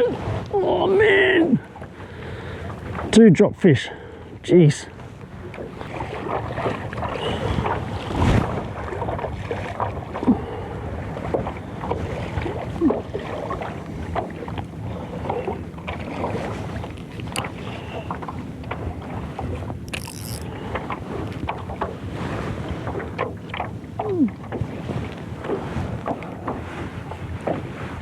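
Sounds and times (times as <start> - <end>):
water lapping against boat hull: 0.0 - 28.0
wind on microphone: 5.8 - 14.0.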